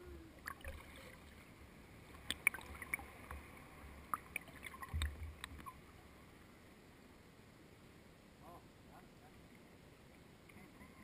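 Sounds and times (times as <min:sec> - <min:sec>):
water sounds around kayak: 0:00.0 - 0:11.0.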